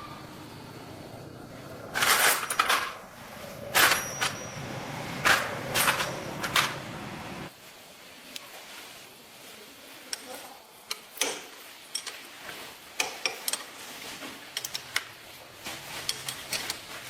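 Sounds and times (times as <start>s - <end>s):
metal tools clinking: 1.8s - 7.0s.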